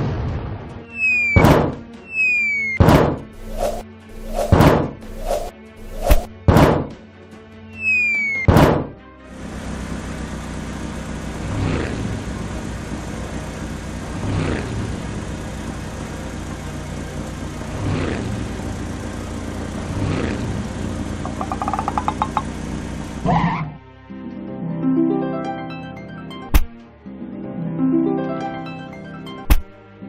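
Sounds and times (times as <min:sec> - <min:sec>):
rising sweep: 0:03.4 - 0:06.3
cartoon engine running: 0:09.4 - 0:23.6
fast ticks: 0:21.2 - 0:22.6.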